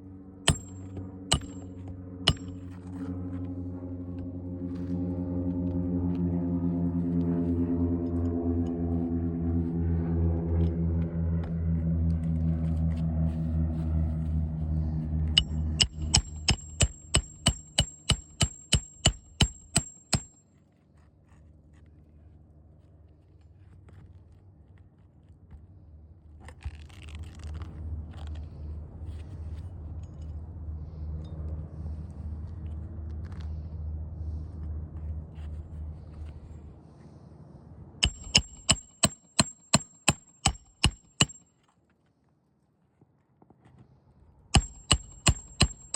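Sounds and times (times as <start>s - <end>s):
steady low hum: 0.0s - 23.5s, 28.0s - 41.4s, 44.4s - 45.9s
hammer striking metal: 0.5s - 1.7s, 2.3s - 2.7s, 15.4s - 20.4s, 38.0s - 41.4s, 44.6s - 45.9s.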